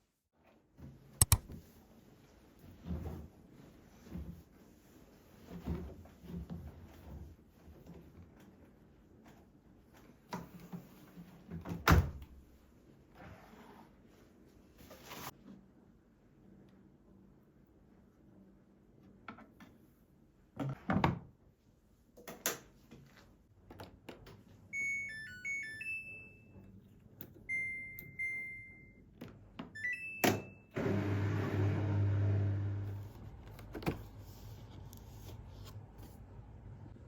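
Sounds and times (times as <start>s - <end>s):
appliance button beeps: 1.2s - 1.5s, 24.8s - 26.4s, 27.5s - 29.0s, 29.8s - 30.8s.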